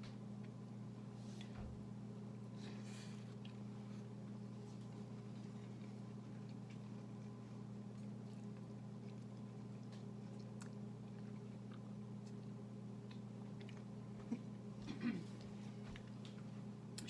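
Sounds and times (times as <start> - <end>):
low steady hum: 0.0 - 17.0
soft chewing mouth clicks: 3.1 - 14.4.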